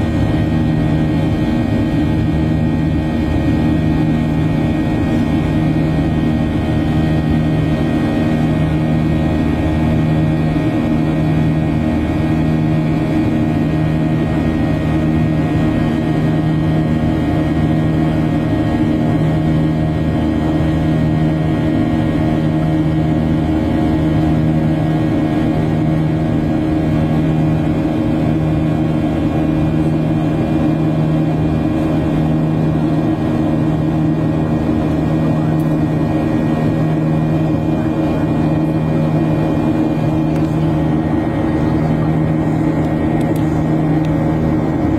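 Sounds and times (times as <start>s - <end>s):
airliner cabin drone: 0.0s - 44.9s.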